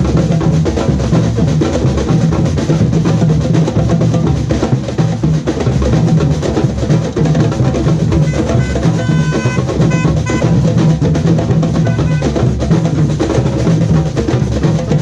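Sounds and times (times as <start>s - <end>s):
samba percussion band drumming: 0.0s - 15.0s
high-pitched tone: 8.2s - 10.6s, 11.8s - 12.3s.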